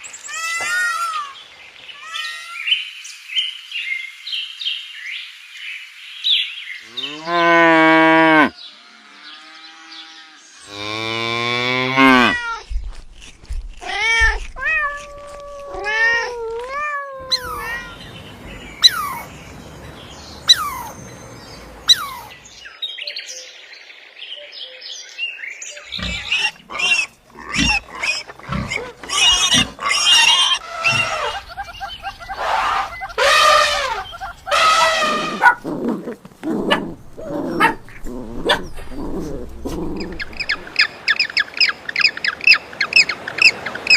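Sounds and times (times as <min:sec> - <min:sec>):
long loud animal calls: 0:26.0 - 0:35.6
animal calls sliding in pitch: 0:32.3 - 0:35.6.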